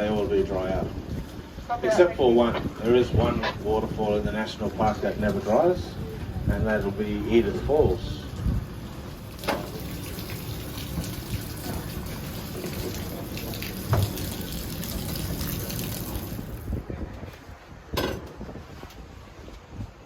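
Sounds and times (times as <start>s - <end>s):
water rushing and splashing: 6.9s - 16.8s.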